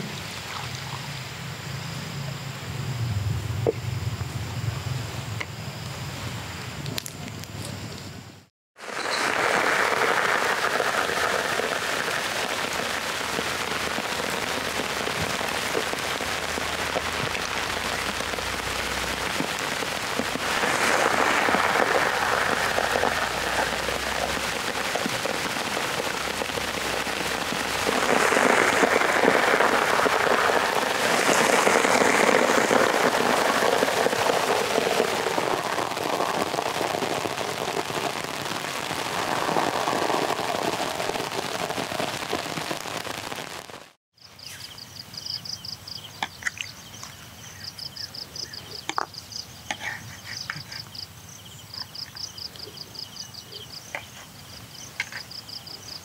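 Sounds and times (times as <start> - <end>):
food sizzling in hot oil: 8.8 - 44.0.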